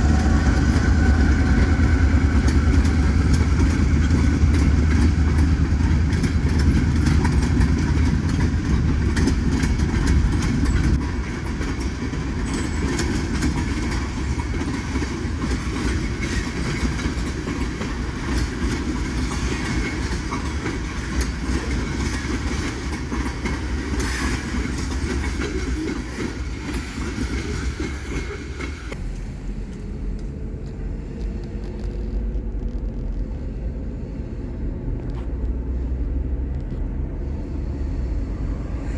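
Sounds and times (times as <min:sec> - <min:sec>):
freight train wheels clacking: 0:00.0 - 0:32.0.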